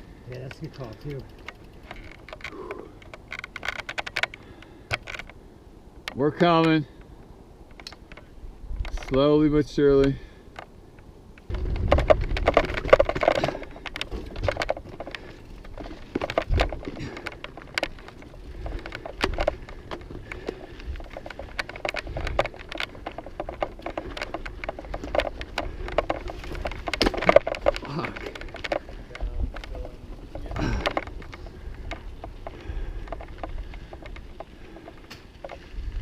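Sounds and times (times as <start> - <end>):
mountain bike clattering over rocks: 0.3 - 5.3, 11.4 - 36.0
wind rumbling on microphone: 7.2 - 36.0.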